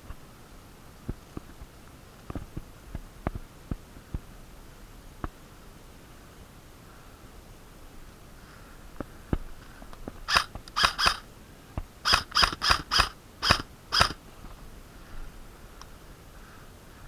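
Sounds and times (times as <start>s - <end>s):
airsoft gun shots: 10.3s - 11.2s, 12.0s - 14.2s.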